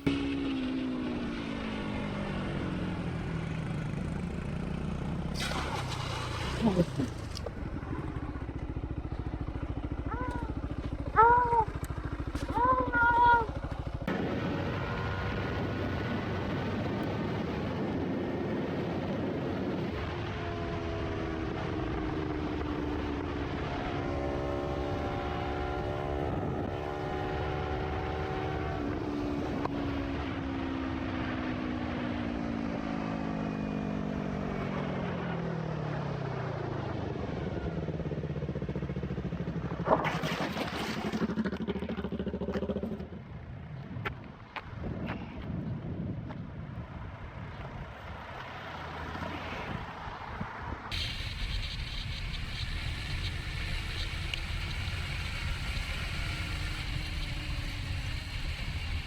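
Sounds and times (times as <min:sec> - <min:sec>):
motorcycle engine slowing: 0:00.0 - 0:44.8, 0:50.9 - 0:59.0
short loud noise burst: 0:05.3 - 0:07.3, 0:50.9 - 0:59.0.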